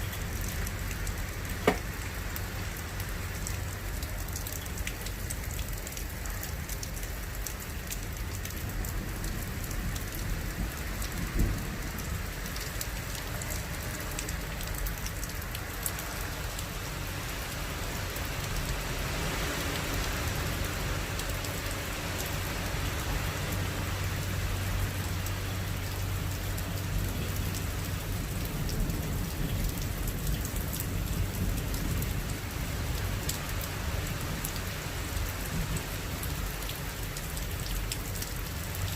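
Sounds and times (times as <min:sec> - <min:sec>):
heavy rain falling: 0:00.0 - 0:38.9
sharp knock: 0:01.6 - 0:01.8.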